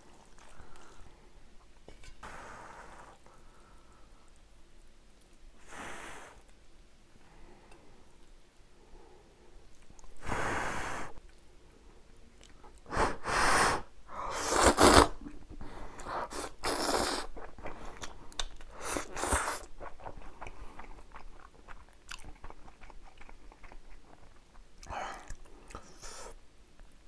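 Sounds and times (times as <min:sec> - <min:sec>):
slurping noodles: 0:12.9 - 0:18.1, 0:18.8 - 0:20.6
wet chewing: 0:14.5 - 0:26.1.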